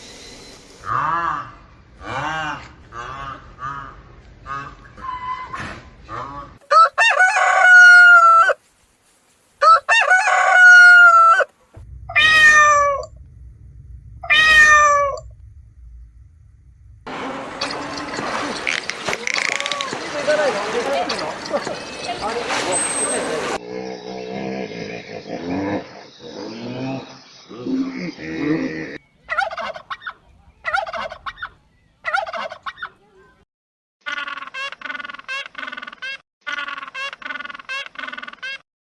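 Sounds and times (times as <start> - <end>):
rooster crowing: 6.7 - 8.5, 17.1 - 23.6
bird call: 17.1 - 23.6
turkey gobbling: 17.1 - 23.6, 29.2 - 33.0
animal call: 17.1 - 25.0.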